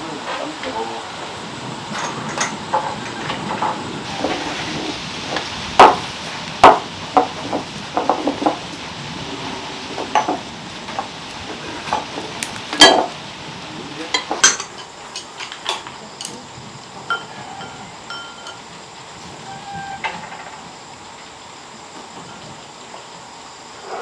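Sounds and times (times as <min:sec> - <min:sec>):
faint steady hiss: 0:00.0 - 0:24.0
utensils knocking on pots: 0:01.9 - 0:04.6, 0:05.3 - 0:08.7, 0:10.0 - 0:11.1, 0:11.8 - 0:13.2, 0:14.1 - 0:16.4, 0:17.0 - 0:18.7.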